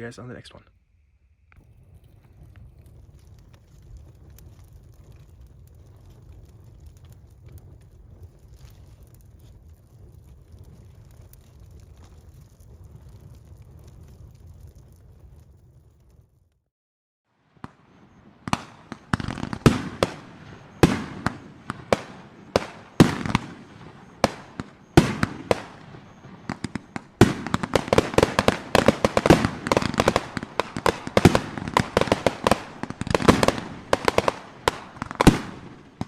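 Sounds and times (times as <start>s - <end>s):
fireworks exploding and crackling: 1.5s - 16.6s, 17.3s - 36.0s.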